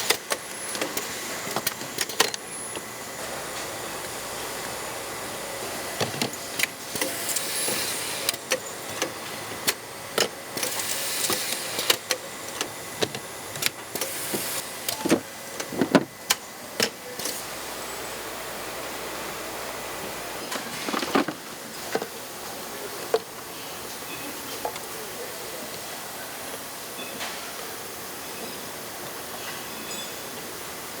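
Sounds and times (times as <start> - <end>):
factory hum: 0.0 - 31.0.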